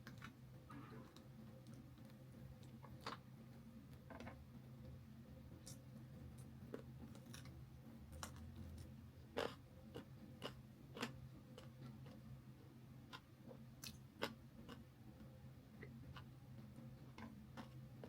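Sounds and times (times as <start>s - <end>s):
chewing and crunching: 6.7s - 12.3s, 13.1s - 14.9s.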